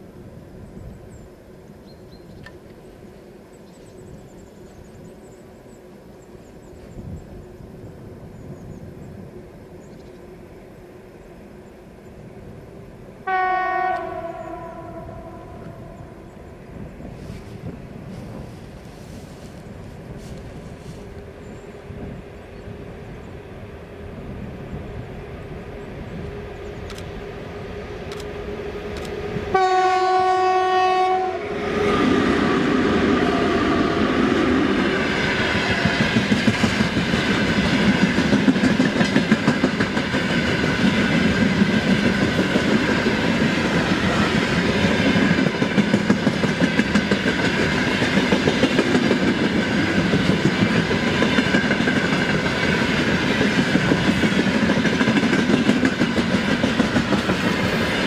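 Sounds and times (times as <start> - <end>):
locomotive horn blast: 13.2 - 16.2, 28.5 - 34.0
train wheels clacking over rail joints: 35.0 - 58.0.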